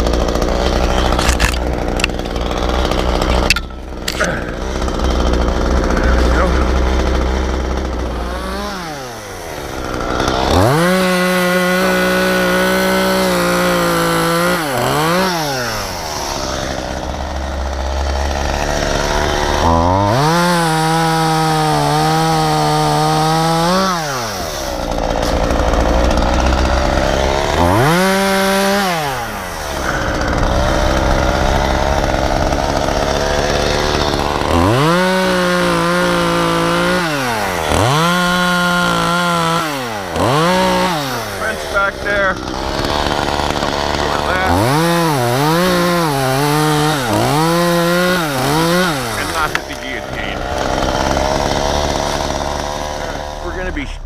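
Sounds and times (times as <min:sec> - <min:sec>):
chainsaw idling and revving: 0:00.0 - 0:54.0.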